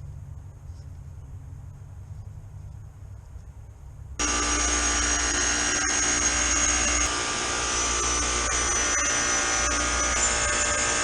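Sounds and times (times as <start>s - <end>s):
chiller running with buzzing hum: 4.2s - 11.0s.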